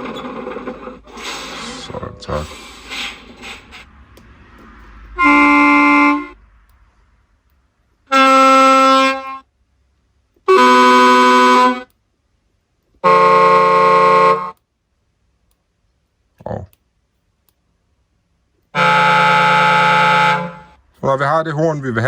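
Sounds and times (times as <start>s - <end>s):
truck horn samples through speaker: 1.1s - 4.1s, 4.8s - 6.6s, 8.1s - 9.5s, 10.4s - 12.0s, 13.0s - 14.6s, 18.8s - 20.8s.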